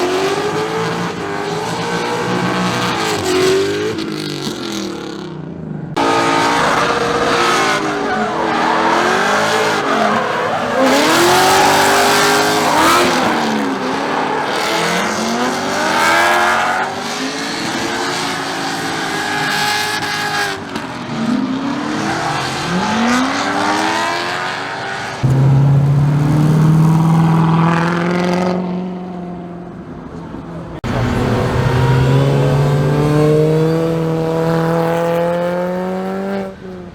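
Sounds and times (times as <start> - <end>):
car engines revving: 0.0 - 36.9
exhaust and tyre noise: 0.0 - 36.9
nearer engine droning: 25.2 - 28.7.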